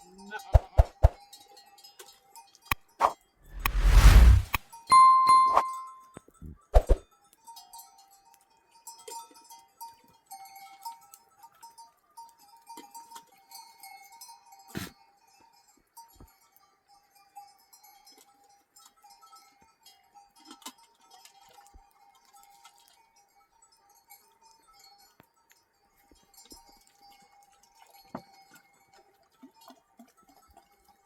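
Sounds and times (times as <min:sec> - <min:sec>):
animal bells clinking: 0:07.1 - 0:31.0.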